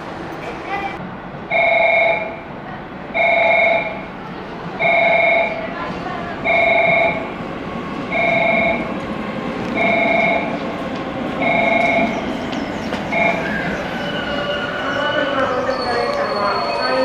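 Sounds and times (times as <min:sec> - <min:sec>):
electric train running: 0:06.0 - 0:17.0.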